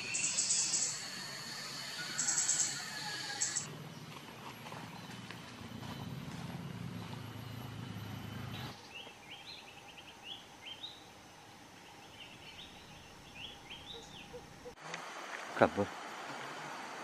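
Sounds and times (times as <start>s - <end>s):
bird chirping: 0.0s - 4.1s, 11.8s - 14.8s
faint outdoor background noise: 0.0s - 17.0s.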